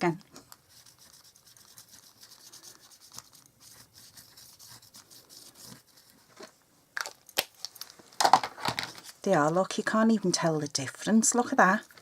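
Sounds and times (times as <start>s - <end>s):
brush pen rubbing on cardstock: 0.6s - 6.2s.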